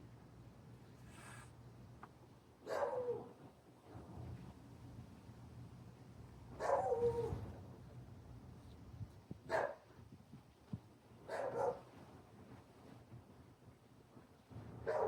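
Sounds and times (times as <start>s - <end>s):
dog barking: 2.7s - 3.3s, 6.6s - 7.3s, 9.5s - 9.8s, 11.3s - 11.8s.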